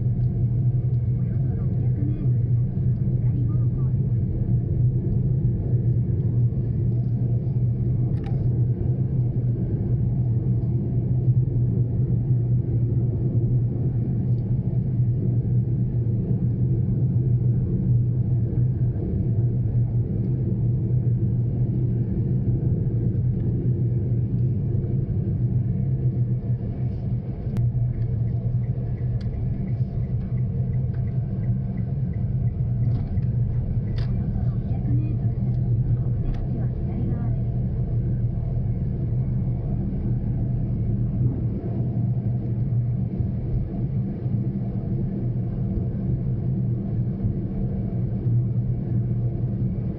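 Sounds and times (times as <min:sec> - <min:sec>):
car engine and road noise: 0:04.0 - 0:49.9
faint regular ticking: 0:27.5 - 0:34.1.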